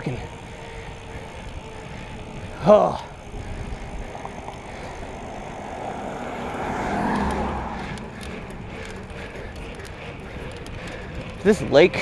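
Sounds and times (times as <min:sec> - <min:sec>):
steady ride noise: 0:00.0 - 0:12.0
car passing by: 0:04.4 - 0:09.1.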